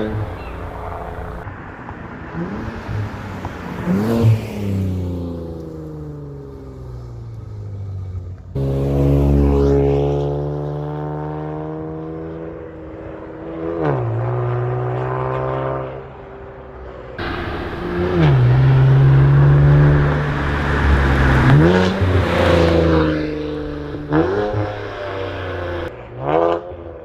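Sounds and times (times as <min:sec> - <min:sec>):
car exhaust driving by: 0:00.0 - 0:11.8, 0:17.2 - 0:25.9.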